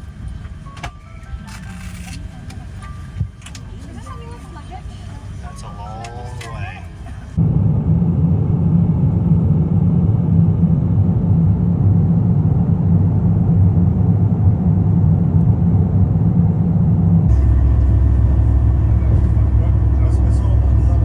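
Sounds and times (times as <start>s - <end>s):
airliner cabin rumble: 0.0s - 21.0s.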